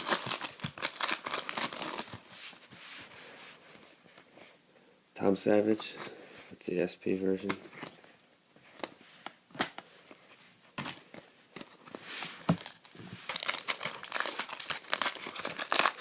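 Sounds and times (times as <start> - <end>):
foil wrapper crinkling: 0.0 - 2.2, 12.6 - 16.0.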